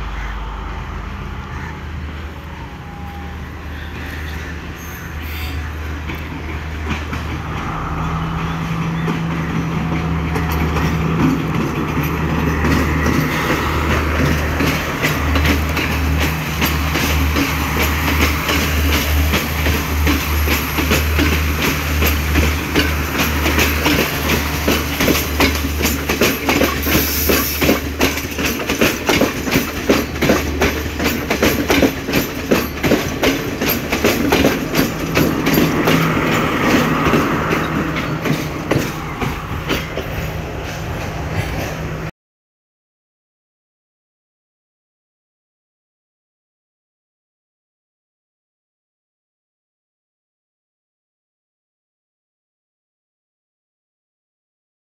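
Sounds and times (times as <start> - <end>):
train wheels clattering: 3.9 - 42.1.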